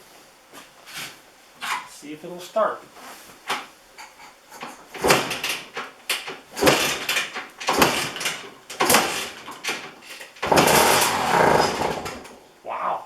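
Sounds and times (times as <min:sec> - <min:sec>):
motorcycle kick-start clunk: 0:04.6 - 0:12.4
engine turning over: 0:04.9 - 0:12.4.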